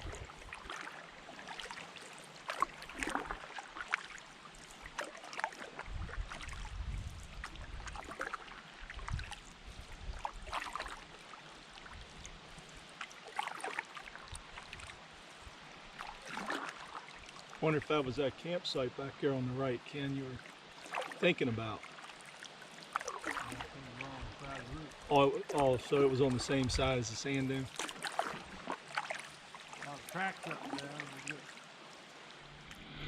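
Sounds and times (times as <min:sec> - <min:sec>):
small knocks and drips: 0:00.0 - 0:17.6, 0:19.9 - 0:31.6
water splashing around paddles: 0:00.0 - 0:33.0.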